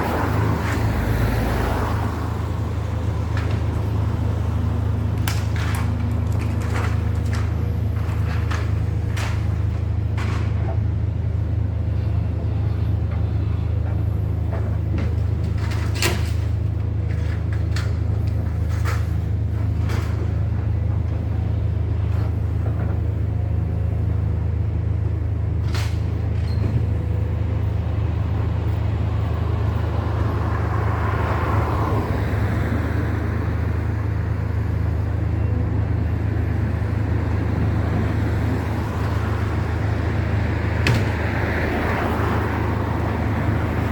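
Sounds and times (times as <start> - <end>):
diesel engine rumble: 0.0 - 43.9
sharp knocks and clanks: 40.8 - 41.2.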